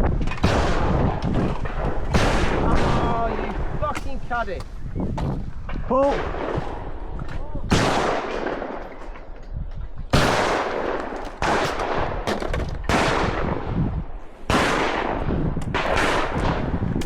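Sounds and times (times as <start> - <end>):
shotgun shots: 0.4 - 4.2, 7.7 - 9.4, 10.1 - 13.8, 14.4 - 17.0.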